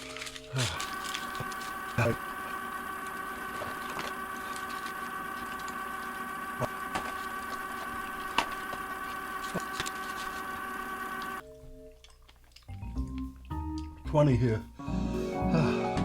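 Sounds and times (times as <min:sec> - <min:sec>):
chocolate crackling and chewing: 0:00.0 - 0:13.5
background hum: 0:00.0 - 0:16.0.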